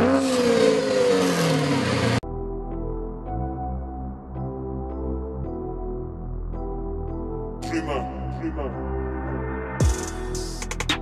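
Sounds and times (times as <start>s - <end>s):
car engine after a rev: 0.0s - 2.2s
ambient music with held chords: 0.0s - 11.0s.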